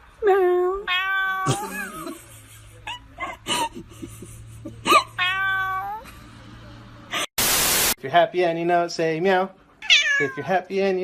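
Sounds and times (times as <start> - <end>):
cat meowing: 0.8 - 1.5, 5.2 - 6.0, 9.8 - 10.5.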